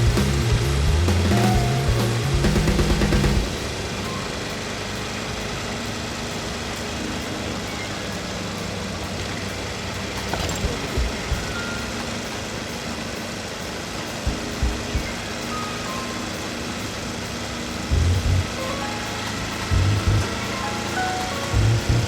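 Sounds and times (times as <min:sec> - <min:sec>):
motorcycle engine running: 0:00.0 - 0:07.0, 0:17.8 - 0:20.9
road noise: 0:00.0 - 0:22.0.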